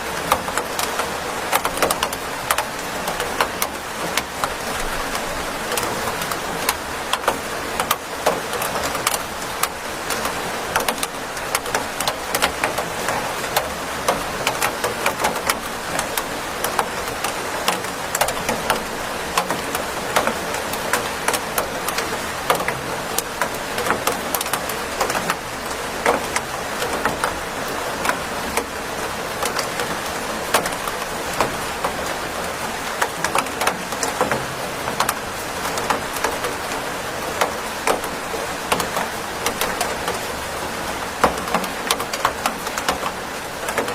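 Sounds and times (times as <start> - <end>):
steady rain falling: 0.0 - 43.9.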